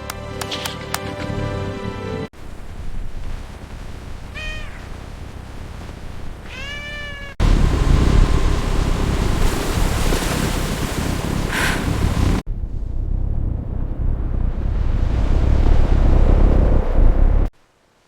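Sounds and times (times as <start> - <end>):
cat meowing: 4.3 - 4.9, 6.4 - 7.4
loud rushing noise with rumble: 7.4 - 17.5.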